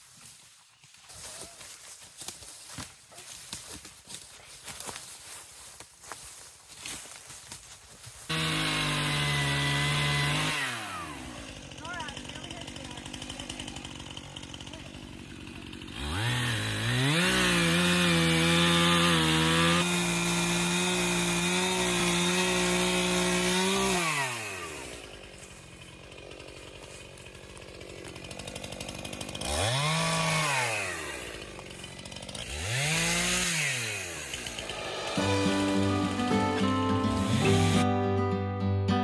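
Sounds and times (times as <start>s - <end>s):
chainsaw revving: 8.2s - 37.9s.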